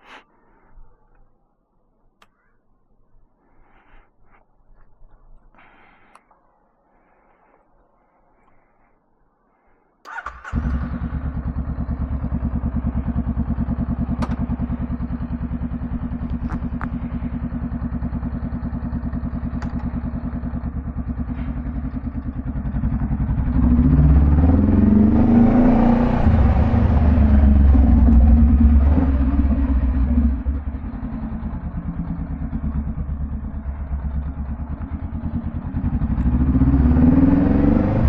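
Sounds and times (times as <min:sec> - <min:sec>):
motorcycle engine starting and idling: 0:10.0 - 0:38.0
motorcycle engine revving: 0:10.1 - 0:38.0.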